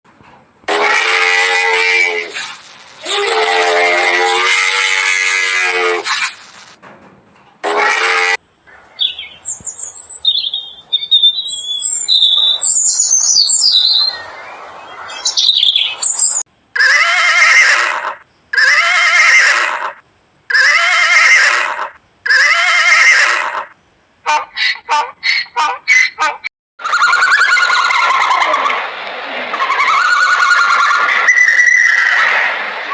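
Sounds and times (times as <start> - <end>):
drawn-out rising and falling calls: 7.7 - 20.0, 20.6 - 32.9
high chirping and squawking calls: 8.1 - 16.4, 24.3 - 28.6.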